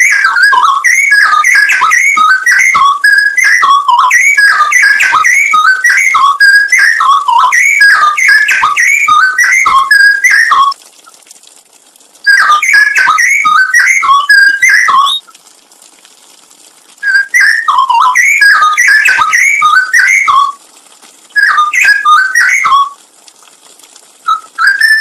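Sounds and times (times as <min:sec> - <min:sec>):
bird singing whistled phrases: 0:00.0 - 0:10.8, 0:12.2 - 0:15.3, 0:17.0 - 0:20.6, 0:21.4 - 0:23.0, 0:24.3 - 0:25.0.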